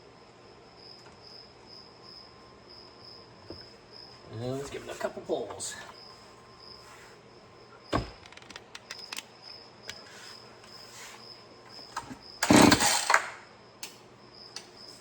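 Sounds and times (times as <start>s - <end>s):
chainsaw engine firing briefly: 12.4s - 13.4s
recoil starter pull: 12.4s - 13.4s.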